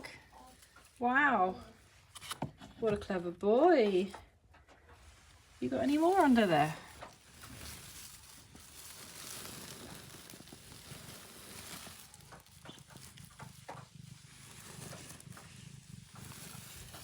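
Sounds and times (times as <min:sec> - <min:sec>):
hand rustling under cat: 0:05.0 - 0:17.0.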